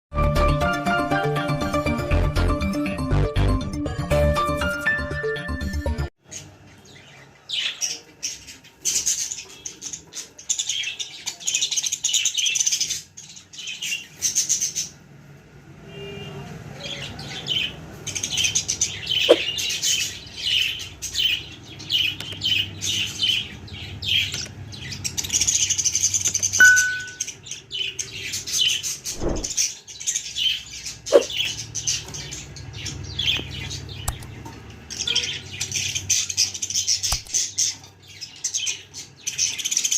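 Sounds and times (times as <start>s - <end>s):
budgies chirping: 6.3s - 15.0s, 16.8s - 39.9s.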